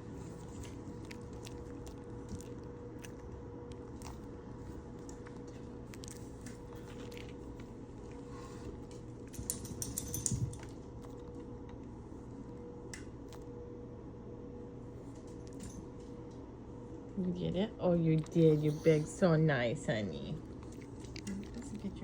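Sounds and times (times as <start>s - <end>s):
dog crunching a treat: 0.0s - 11.9s, 20.4s - 22.0s.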